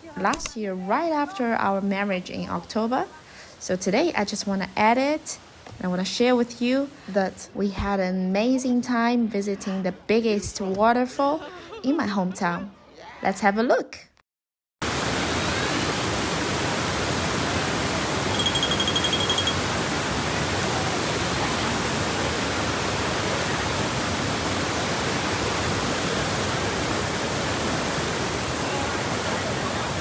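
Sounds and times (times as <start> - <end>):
waterfall roaring: 14.8 - 30.0
short high-pitched tone: 18.3 - 19.6.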